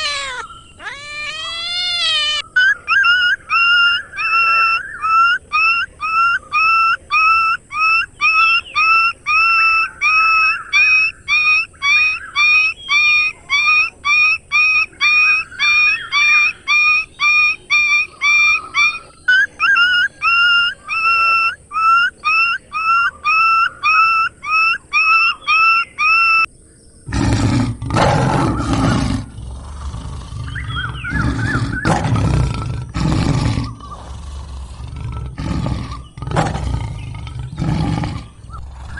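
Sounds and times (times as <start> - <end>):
animal's short high call: 0.0 - 2.4
big cat roaring and growling: 27.1 - 38.9.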